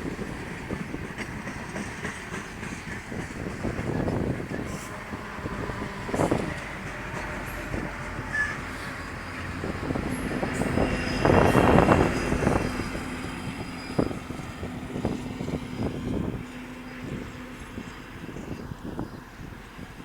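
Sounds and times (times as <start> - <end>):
train wheels knocking and clanking: 0.0 - 8.7
train rumbling past: 0.0 - 20.0.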